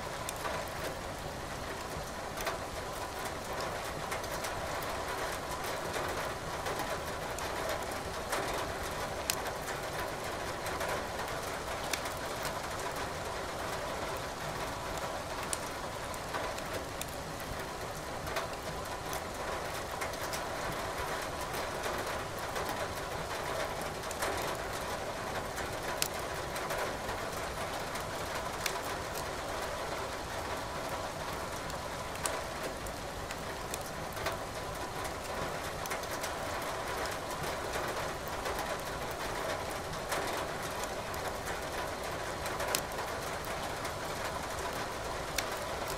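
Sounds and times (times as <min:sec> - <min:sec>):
steady rain: 0:00.0 - 0:45.9
wood fire crackling and popping: 0:11.8 - 0:12.1, 0:15.4 - 0:15.7, 0:26.0 - 0:26.2, 0:45.3 - 0:45.9.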